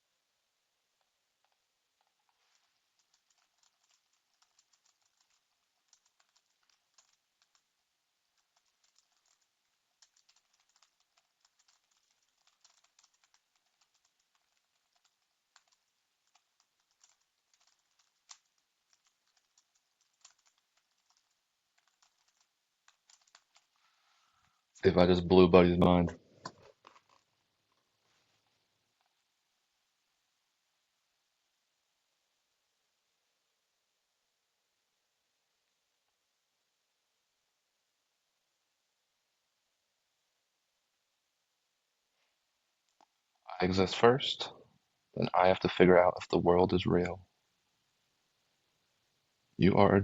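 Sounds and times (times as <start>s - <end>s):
typing on computer keyboard: 1.4s - 23.7s.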